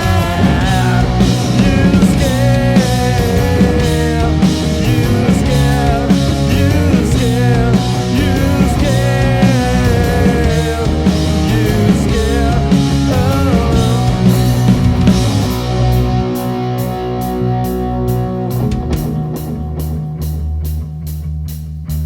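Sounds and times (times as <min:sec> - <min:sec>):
bass guitar: 0:00.0 - 0:22.0
distorted electric guitars: 0:00.0 - 0:22.0
drums: 0:00.0 - 0:22.0.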